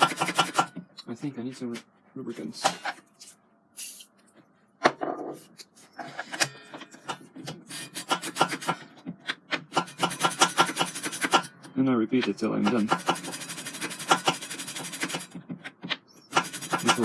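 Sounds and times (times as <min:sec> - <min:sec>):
file scraping saw blade: 0:07.6 - 0:08.7, 0:09.8 - 0:11.5, 0:12.7 - 0:15.3, 0:16.3 - 0:17.0.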